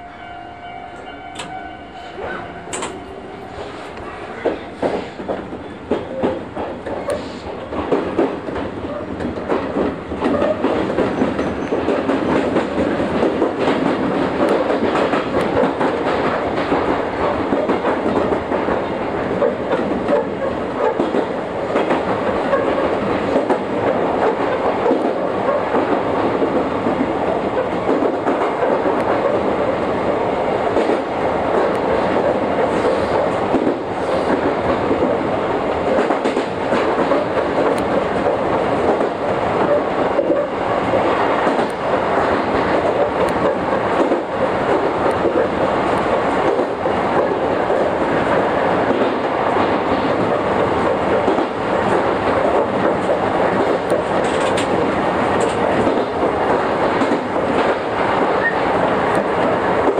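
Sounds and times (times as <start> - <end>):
train wheels rumbling on rail: 0.0 - 59.9
wheels clicking over rail joints: 35.8 - 59.9.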